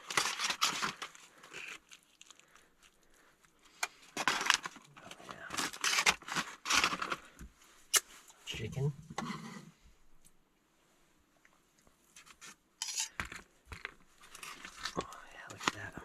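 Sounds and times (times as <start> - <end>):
packaging rustling and crinkling: 0.0 - 7.4, 13.2 - 16.0.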